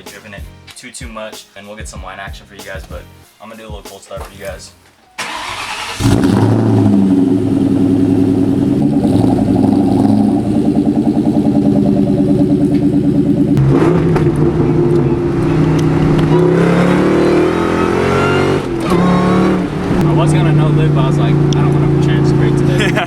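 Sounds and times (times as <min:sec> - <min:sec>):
car engine high idle: 0:05.2 - 0:13.6, 0:20.0 - 0:23.0.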